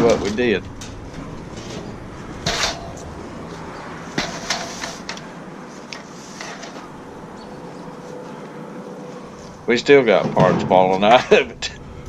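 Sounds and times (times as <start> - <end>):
metal grill clanking and rattling: 0.0 - 7.6, 9.8 - 11.4.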